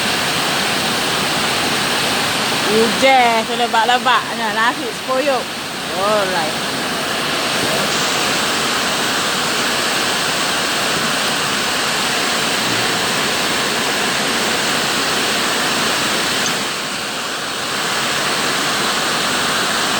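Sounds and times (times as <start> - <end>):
heavy rain pouring: 0.0 - 19.9.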